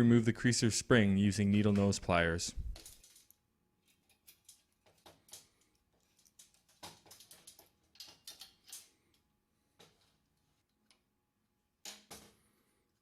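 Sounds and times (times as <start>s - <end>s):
clicks of pliers and metal parts: 2.6s - 9.2s.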